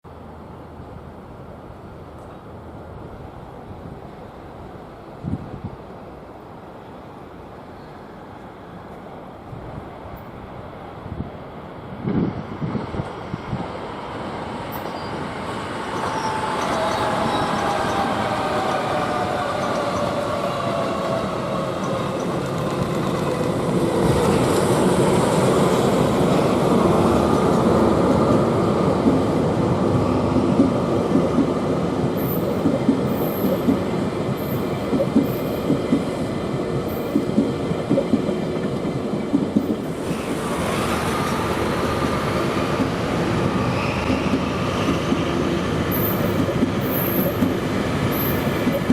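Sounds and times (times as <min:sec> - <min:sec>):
diesel locomotive engine passing: 0:00.1 - 0:48.9
train wheels clickety-clack: 0:14.7 - 0:48.9.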